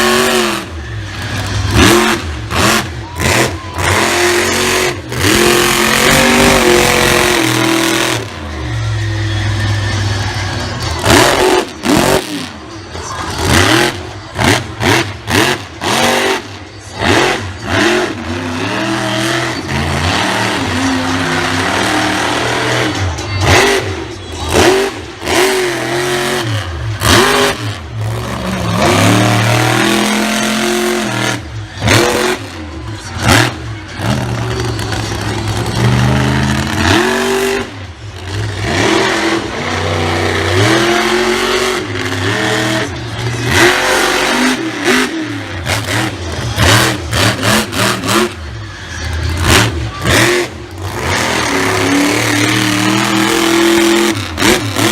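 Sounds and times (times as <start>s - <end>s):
monster truck engine revving: 0.0s - 54.9s.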